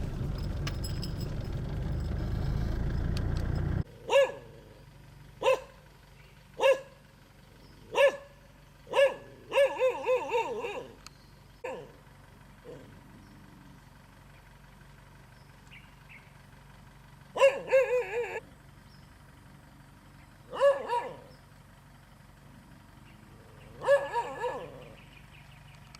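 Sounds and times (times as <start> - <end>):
dog barking: 4.0 - 4.7, 5.4 - 5.8, 6.6 - 7.0, 7.9 - 11.0, 11.6 - 12.0, 17.3 - 18.4, 20.5 - 21.3, 23.8 - 25.0.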